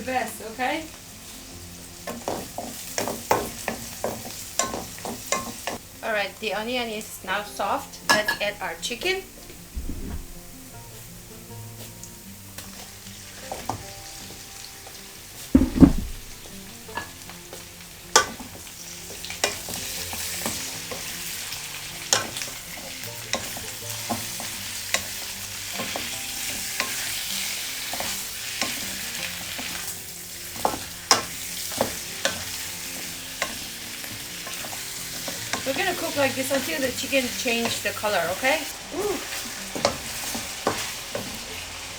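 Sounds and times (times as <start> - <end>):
chicken sizzling in hot oil: 0.0 - 41.9
heavy thump: 9.8 - 10.7, 15.5 - 16.6
spoon knocking against pot: 15.6 - 16.5.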